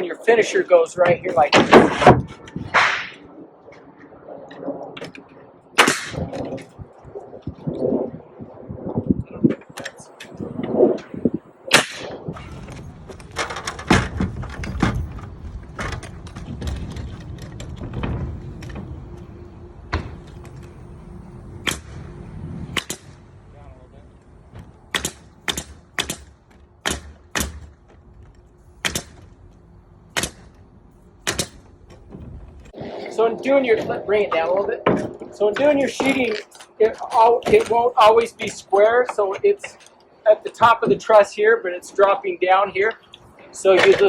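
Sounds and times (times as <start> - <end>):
nail gun firing into roof sheeting: 24.9 - 27.8, 28.8 - 29.3, 30.1 - 30.6, 31.2 - 31.6.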